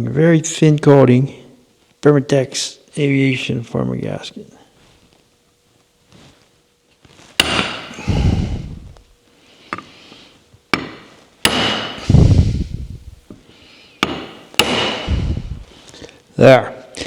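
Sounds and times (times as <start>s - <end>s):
hammer striking metal: 7.4s - 7.9s, 10.8s - 12.0s, 14.0s - 15.1s.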